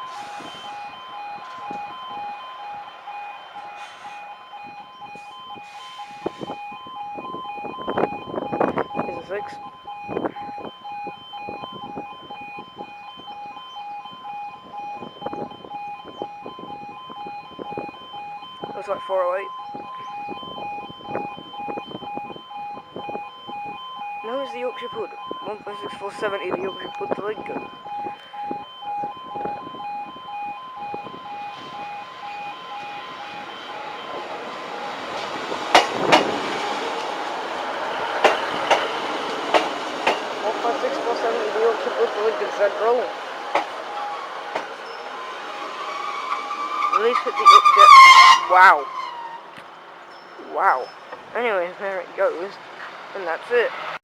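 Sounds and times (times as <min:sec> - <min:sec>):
electronic two-tone alarm pulsing: 0:00.0 - 0:36.8, 0:44.8 - 0:49.4
train wheels clacking on rail joints: 0:34.0 - 0:40.4, 0:43.2 - 0:47.7.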